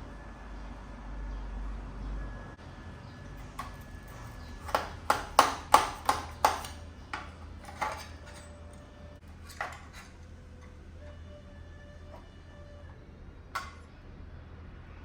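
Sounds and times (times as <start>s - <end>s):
hammer striking metal bracket: 3.4s - 8.6s.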